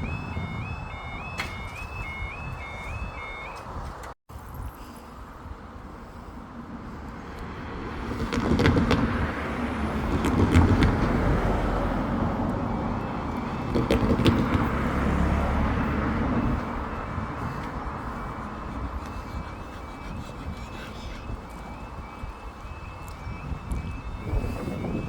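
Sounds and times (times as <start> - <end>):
train rumbling: 7.5 - 22.6
train wheels clicking on rail joints: 8.0 - 11.6.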